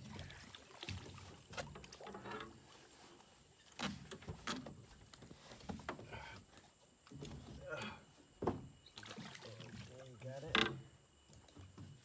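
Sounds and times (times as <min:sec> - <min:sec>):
knocks and bumps in small boat: 0:08.4 - 0:08.8, 0:10.4 - 0:12.0.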